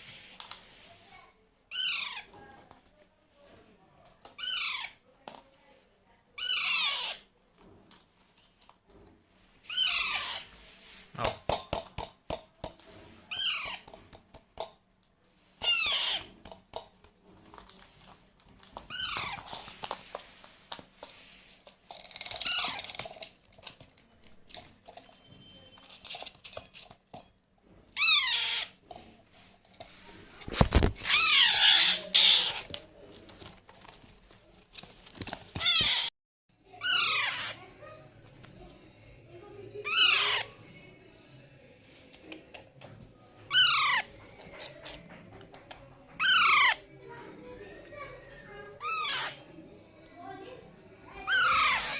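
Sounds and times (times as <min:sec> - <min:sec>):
parakeet calling: 0:01.7 - 0:02.3, 0:04.4 - 0:05.0, 0:06.4 - 0:07.3, 0:09.7 - 0:10.5, 0:13.3 - 0:13.9, 0:15.6 - 0:16.3, 0:28.0 - 0:28.8, 0:31.0 - 0:32.6, 0:35.6 - 0:36.1, 0:36.8 - 0:37.6, 0:39.8 - 0:40.5, 0:43.5 - 0:44.1, 0:46.2 - 0:46.8, 0:48.8 - 0:49.4, 0:51.3 - 0:51.9.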